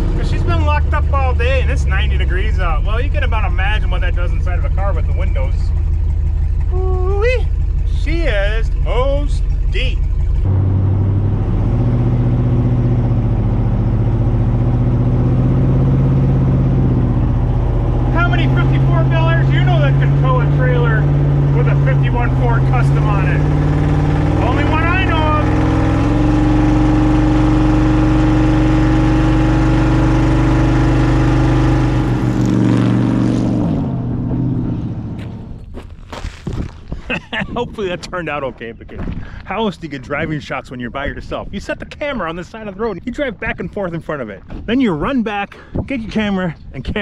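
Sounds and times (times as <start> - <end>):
car engine pulling under load: 0.0 - 37.0.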